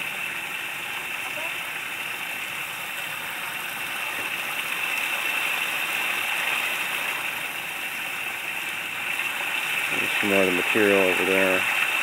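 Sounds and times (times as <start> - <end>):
water splashing down waterfall: 0.0 - 12.0.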